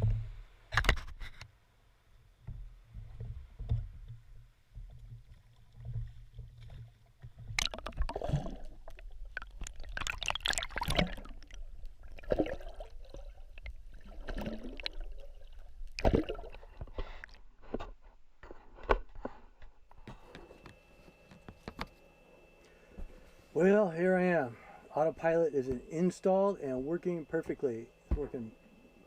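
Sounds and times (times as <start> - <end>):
oars splashing in water: 4.8 - 17.4.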